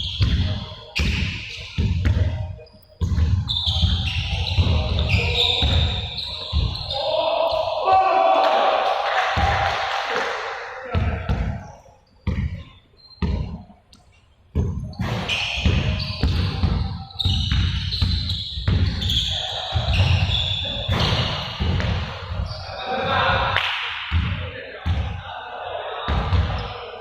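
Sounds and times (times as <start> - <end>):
basketballs dribbling on court: 0.0 - 2.4, 3.0 - 7.0, 12.2 - 13.6, 14.5 - 22.6.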